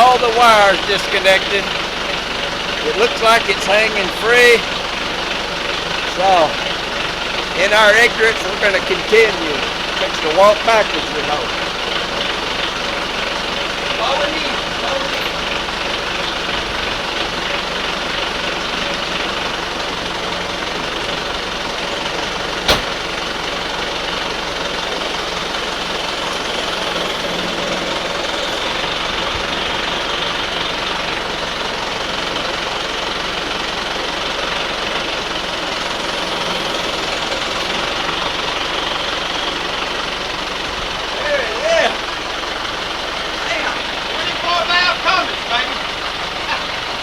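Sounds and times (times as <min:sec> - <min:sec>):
engine idling: 0:00.0 - 0:47.0
sharp metallic clank: 0:22.6 - 0:23.1.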